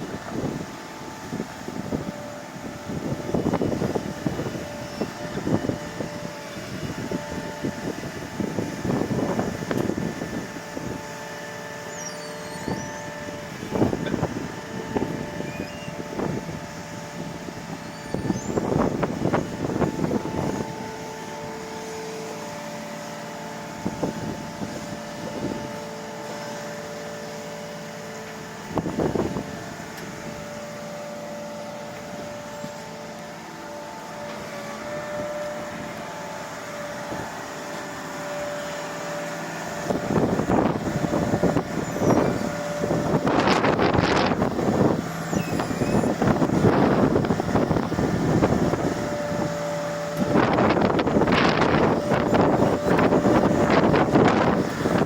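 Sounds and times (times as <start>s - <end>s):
wind gusting on microphone: 0.0s - 11.5s, 12.6s - 21.8s, 23.7s - 26.0s, 28.4s - 30.8s, 39.7s - 55.0s
asphalt paver whining and rumbling: 0.0s - 55.0s
paving machine diesel hum: 0.0s - 55.0s.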